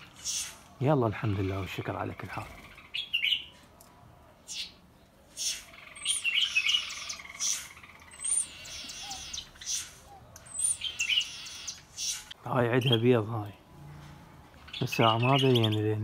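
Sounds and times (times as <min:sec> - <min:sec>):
small birds chirping: 0:00.0 - 0:16.0
high whistling bird call: 0:05.4 - 0:13.0.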